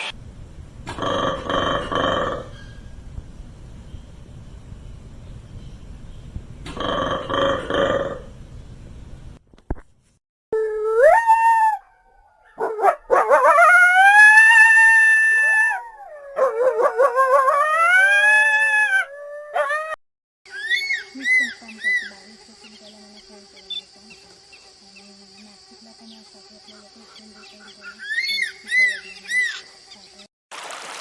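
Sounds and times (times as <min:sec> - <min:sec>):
dog howling: 0:10.6 - 0:20.0.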